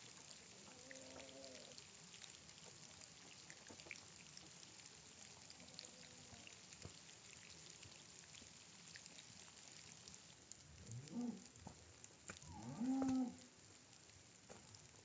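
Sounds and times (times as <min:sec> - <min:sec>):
light rain hiss: 0:00.0 - 0:15.0
raindrops ticking: 0:06.4 - 0:15.0.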